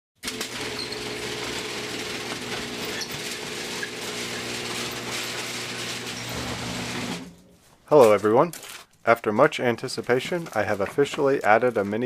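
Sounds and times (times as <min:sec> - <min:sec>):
milling machine running: 0:00.2 - 0:07.3.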